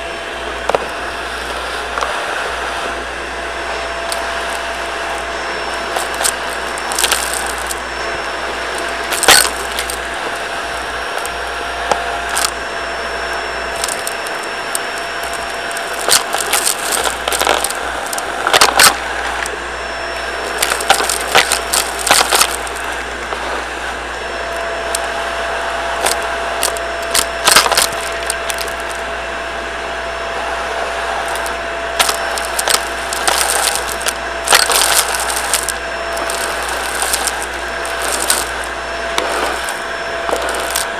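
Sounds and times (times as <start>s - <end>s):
vacuum cleaner whining: 0.0s - 40.9s
debris clicking and rattling: 3.8s - 12.6s, 13.2s - 19.6s, 20.2s - 23.5s, 26.0s - 29.0s, 31.2s - 40.9s.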